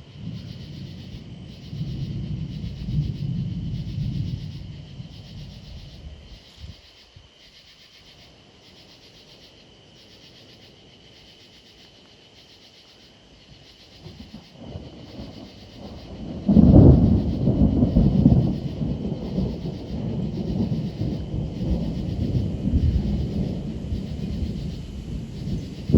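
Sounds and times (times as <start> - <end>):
thunder rumbling: 0.0 - 6.8, 14.0 - 25.9
loud thunder clap: 1.8 - 6.0, 14.0 - 25.9.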